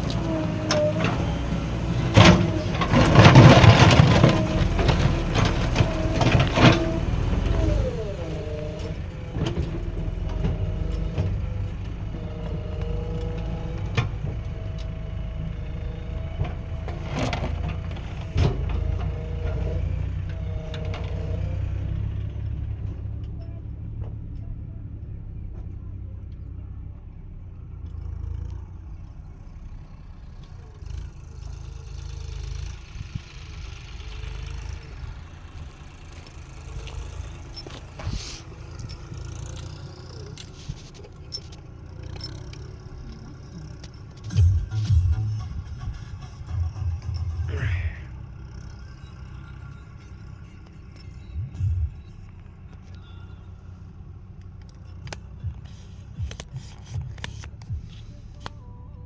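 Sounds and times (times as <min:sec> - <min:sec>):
whining tone: 0:00.0 - 0:12.1, 0:31.8 - 0:59.0
diesel engine working under load: 0:00.0 - 0:59.0.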